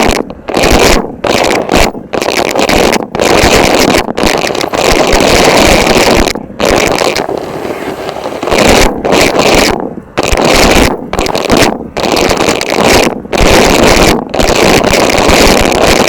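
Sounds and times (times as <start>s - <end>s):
vacuum cleaner running: 7.2s - 8.8s.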